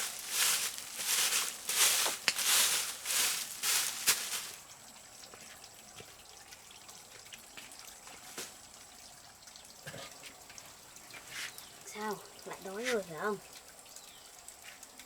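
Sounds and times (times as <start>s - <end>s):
water splashing: 0.0s - 4.6s.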